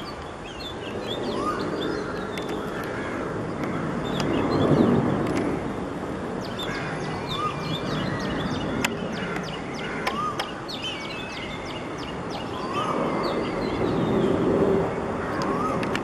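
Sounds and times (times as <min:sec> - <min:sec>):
rising and falling whistled call: 0:00.0 - 0:02.6
small birds chirping rapidly: 0:00.0 - 0:05.5, 0:06.3 - 0:16.0.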